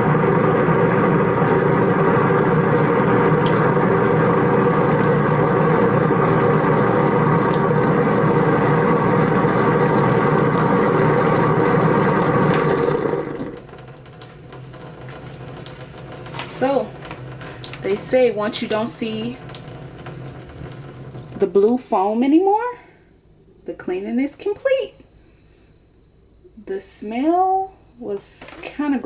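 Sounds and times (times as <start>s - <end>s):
garbage disposal running: 0.0s - 22.2s.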